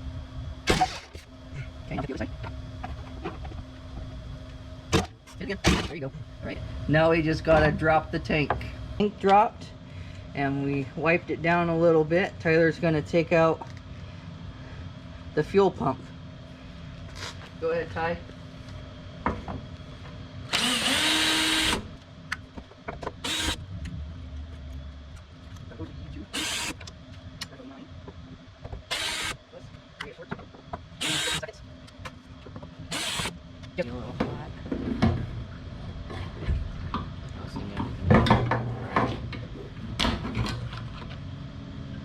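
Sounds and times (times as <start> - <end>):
cordless drill motor whine: 20.5 - 22.0, 23.1 - 23.8, 26.2 - 26.9, 28.8 - 29.4, 31.0 - 31.6, 32.8 - 33.4.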